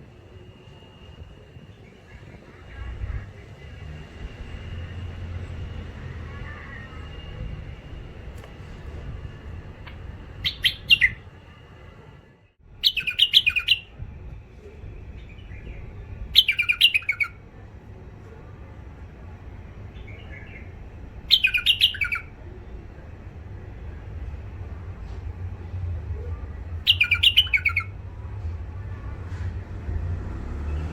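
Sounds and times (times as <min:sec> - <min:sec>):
steady low hum: 0:00.0 - 0:12.8
bird chattering song: 0:09.9 - 0:11.2, 0:12.8 - 0:13.9, 0:16.4 - 0:17.4, 0:21.3 - 0:22.3, 0:26.8 - 0:27.9.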